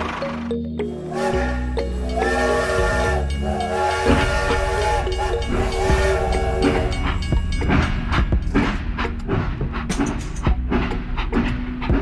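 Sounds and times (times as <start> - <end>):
toy train whistle: 0.9 - 7.3.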